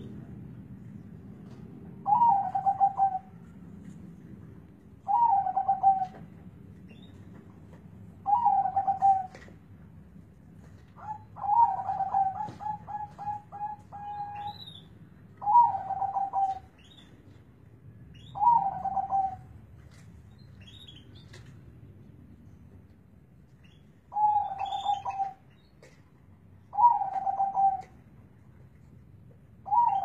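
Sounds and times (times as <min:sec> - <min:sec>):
dove cooing: 0:02.0 - 0:03.4, 0:05.1 - 0:06.2, 0:08.2 - 0:09.4, 0:11.0 - 0:14.6, 0:15.4 - 0:16.7, 0:18.4 - 0:19.5, 0:24.1 - 0:25.4, 0:26.7 - 0:27.9, 0:29.6 - 0:30.0.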